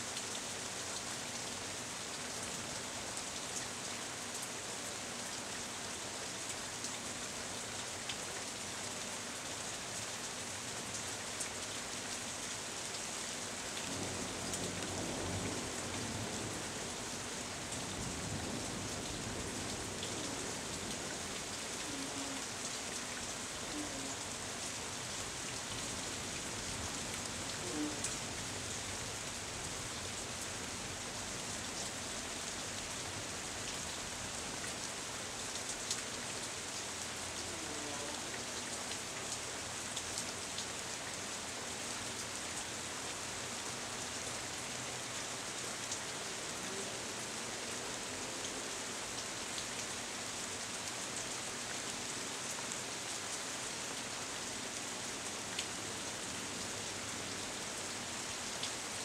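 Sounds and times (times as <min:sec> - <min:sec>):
rain falling through foliage: 0:00.0 - 0:59.0.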